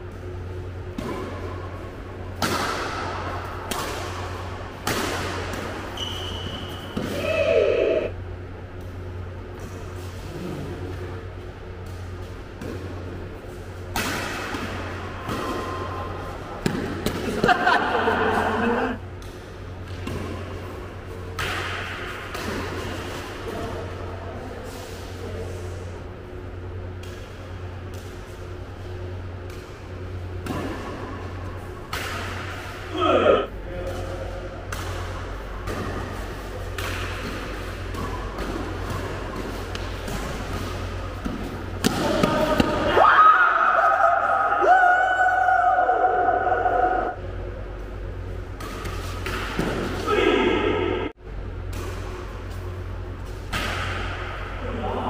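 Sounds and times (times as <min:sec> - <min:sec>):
steady low hum: 0:00.0 - 0:55.0
racket hitting shuttlecock: 0:02.3 - 0:08.0, 0:11.8 - 0:18.1, 0:19.2 - 0:23.8, 0:29.3 - 0:33.1, 0:34.6 - 0:43.0, 0:48.5 - 0:54.6.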